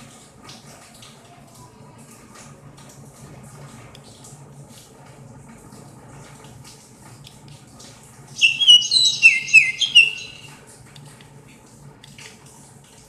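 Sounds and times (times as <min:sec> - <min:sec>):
loud high chirps: 0:08.4 - 0:10.6.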